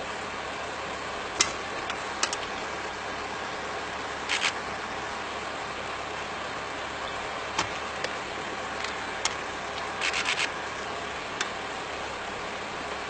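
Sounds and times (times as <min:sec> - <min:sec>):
engine idling: 0:00.0 - 0:13.0
sharp clicks: 0:01.4 - 0:02.5, 0:04.3 - 0:04.6, 0:08.8 - 0:10.5.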